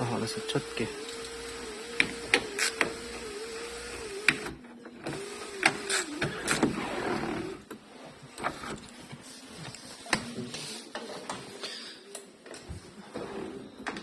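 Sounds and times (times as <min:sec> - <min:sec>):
electric sunroof motor: 0:00.0 - 0:07.7.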